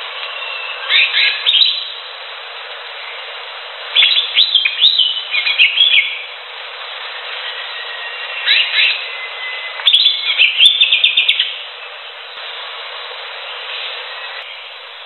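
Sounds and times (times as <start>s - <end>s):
background hiss: 0.0s - 15.0s
bird chirping song: 0.2s - 2.0s, 4.0s - 6.3s, 7.4s - 11.9s.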